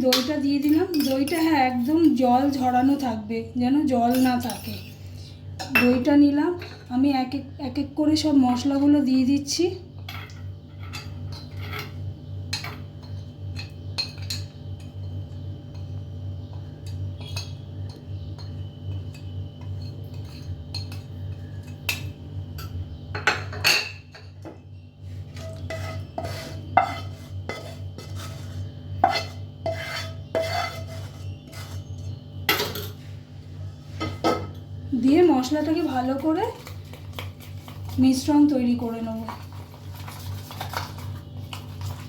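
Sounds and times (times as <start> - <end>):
steady low hum: 0.0 - 42.0
spoon clinking against bowl: 0.1 - 1.6.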